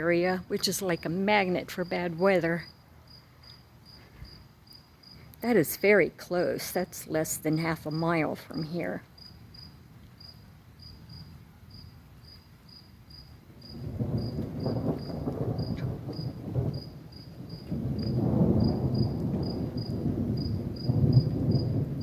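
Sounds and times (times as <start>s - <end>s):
crickets chirping: 0.0s - 22.0s
thunder rumbling: 10.4s - 22.0s.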